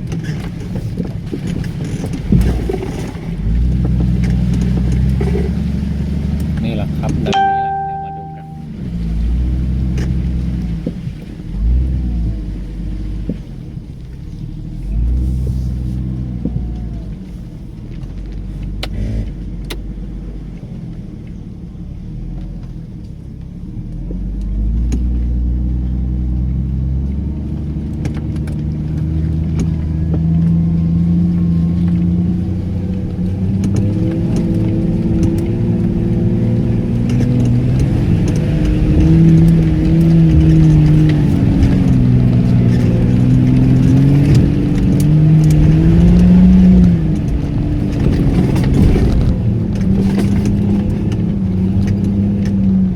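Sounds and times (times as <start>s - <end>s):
car engine revving: 0.0s - 7.4s, 23.7s - 52.9s.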